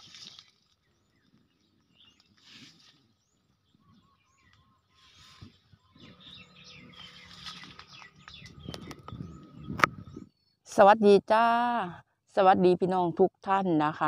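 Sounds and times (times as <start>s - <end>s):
bird calls and chirps: 0.0s - 10.7s.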